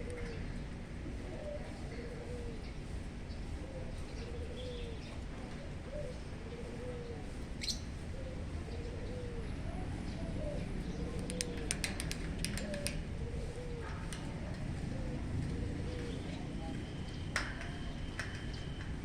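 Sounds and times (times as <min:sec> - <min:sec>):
dove cooing: 0:00.0 - 0:19.0.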